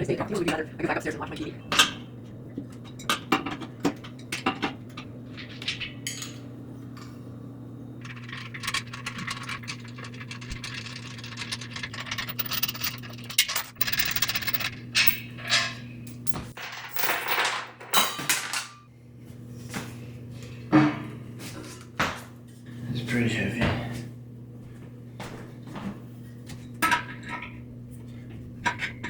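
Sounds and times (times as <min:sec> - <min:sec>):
steady low hum: 0:00.0 - 0:16.6
tools and metal parts clinking: 0:02.7 - 0:06.5, 0:08.0 - 0:18.8.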